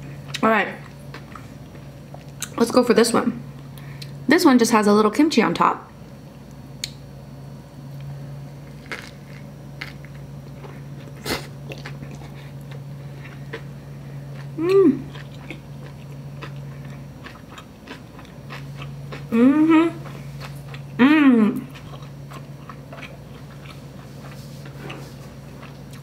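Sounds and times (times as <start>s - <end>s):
steady low hum: 0.0s - 26.0s
chewing with crunches: 0.2s - 2.6s, 7.9s - 21.0s, 21.6s - 26.0s
person humming mm: 14.6s - 15.1s, 19.3s - 20.0s, 21.0s - 21.7s.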